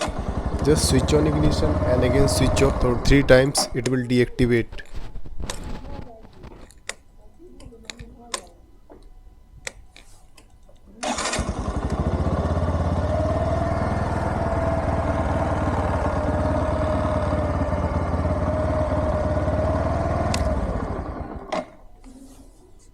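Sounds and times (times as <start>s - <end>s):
motorcycle engine idling: 0.0s - 3.8s, 11.4s - 21.7s.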